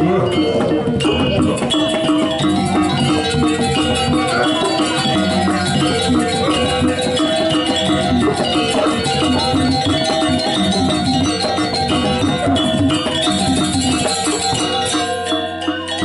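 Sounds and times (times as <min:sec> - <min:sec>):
gamelan music: 0:00.0 - 0:16.0.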